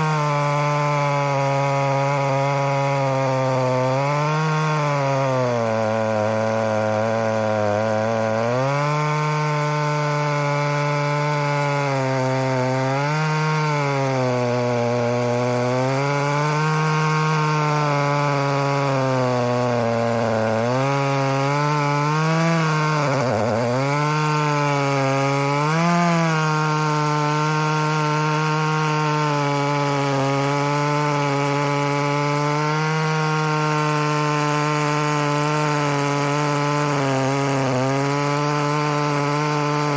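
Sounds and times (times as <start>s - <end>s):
chainsaw cutting at full throttle: 0.0s - 39.9s.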